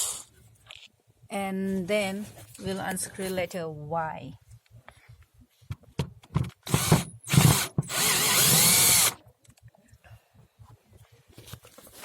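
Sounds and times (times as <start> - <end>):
power drill unscrewing a screw: 6.7 - 9.2.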